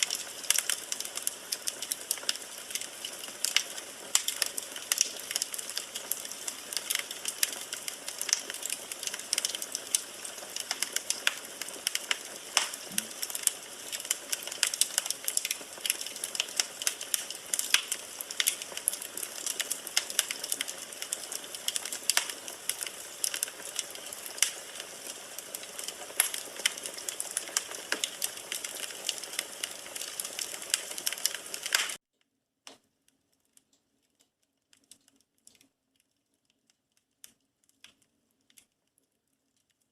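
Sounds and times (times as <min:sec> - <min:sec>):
wood fire crackling: 0:00.0 - 0:32.0, 0:32.6 - 0:39.9.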